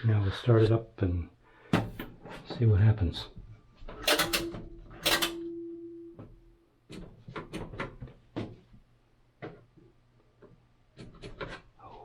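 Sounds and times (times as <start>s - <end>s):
dryer door clunk with ringing: 1.8s - 2.1s, 4.0s - 6.4s
sharp clicks and knocks: 4.0s - 5.5s.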